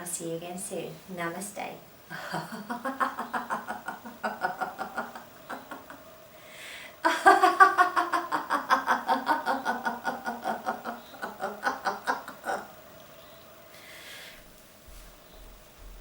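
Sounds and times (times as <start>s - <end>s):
woman laughing: 2.1s - 6.0s, 7.0s - 12.8s
woman breathing in: 6.3s - 7.0s, 13.7s - 14.6s.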